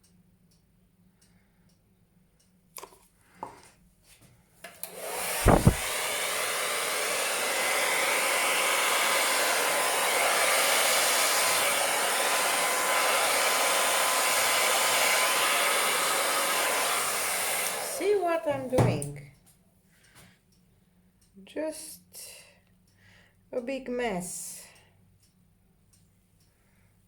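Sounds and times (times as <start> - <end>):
hair dryer blowing air: 4.7 - 19.0
low thump: 5.4 - 5.9.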